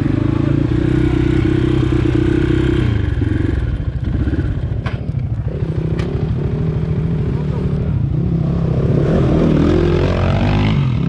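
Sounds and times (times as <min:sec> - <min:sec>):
dirt bike engine revving: 0:05.5 - 0:11.0.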